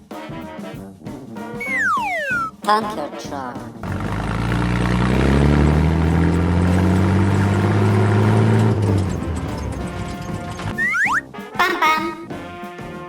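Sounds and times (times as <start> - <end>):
truck engine pulling away: 3.8 - 10.9.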